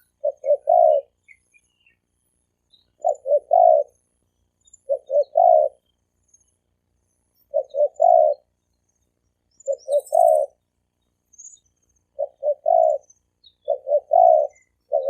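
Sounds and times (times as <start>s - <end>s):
dove cooing: 0.0s - 1.4s, 2.9s - 4.0s, 4.8s - 5.9s, 7.5s - 8.6s, 9.6s - 10.6s, 12.1s - 15.0s
small birds chirping: 0.0s - 15.0s.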